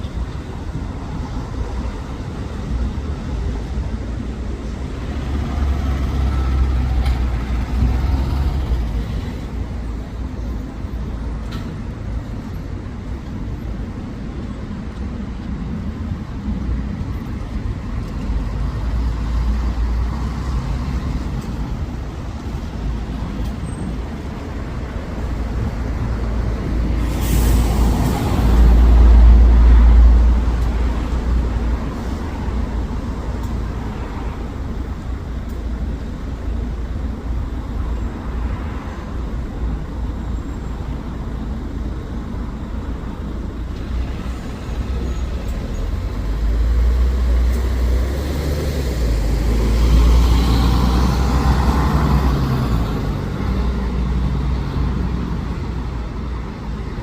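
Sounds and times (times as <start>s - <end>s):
diesel bus engine: 0.0s - 57.0s
road traffic: 0.0s - 57.0s
air brakes hissing: 26.9s - 28.2s.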